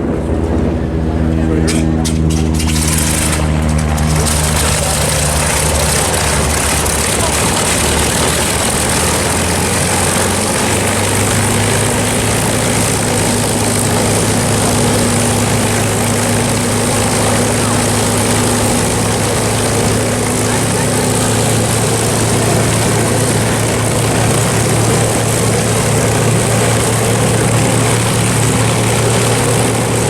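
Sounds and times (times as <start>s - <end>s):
propeller aircraft engine drone: 0.0s - 30.0s.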